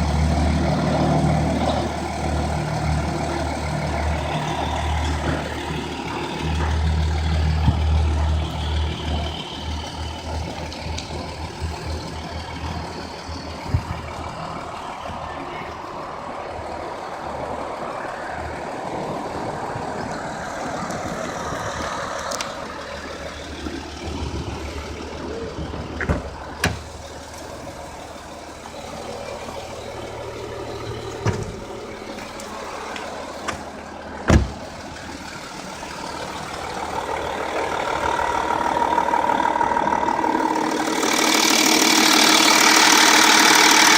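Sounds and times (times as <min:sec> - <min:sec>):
diesel car engine idling: 0:00.0 - 0:43.9
sharp knocks: 0:34.3 - 0:34.6.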